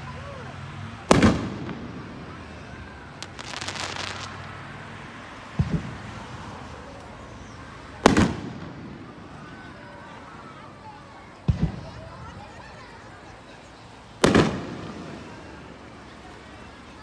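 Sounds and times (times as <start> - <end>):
firework crackles: 1.0 - 17.0
firework bang with echo: 1.1 - 2.4, 3.2 - 4.4, 8.0 - 9.1, 14.2 - 15.3.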